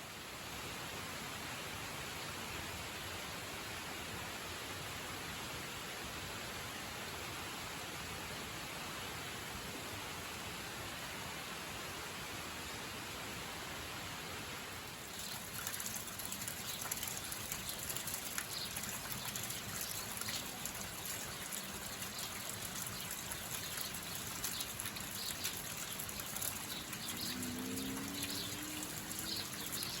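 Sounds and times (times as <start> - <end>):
rain falling: 14.5 - 30.0.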